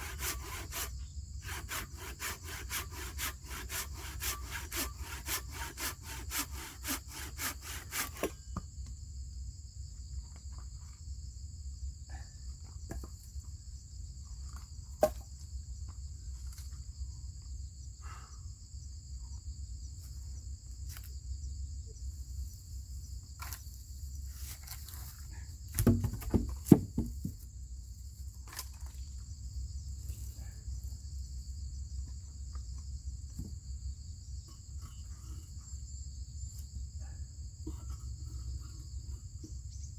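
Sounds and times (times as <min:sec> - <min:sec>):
hand saw cutting wood: 0:00.0 - 0:08.4, 0:25.8 - 0:27.1
insect chorus: 0:00.0 - 0:39.9
wooden knocks: 0:25.8 - 0:27.4.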